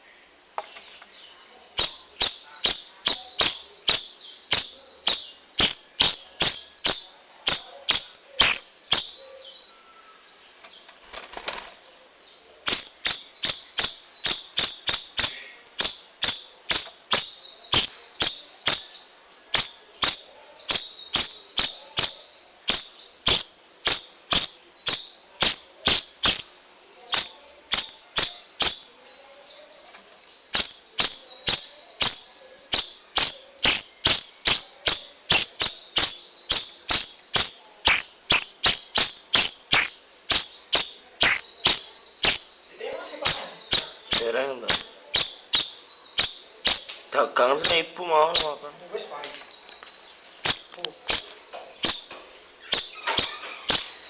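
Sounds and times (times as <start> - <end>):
bulbul chirping: 1.7 - 9.7, 12.5 - 29.0, 30.2 - 48.7, 50.1 - 54.0.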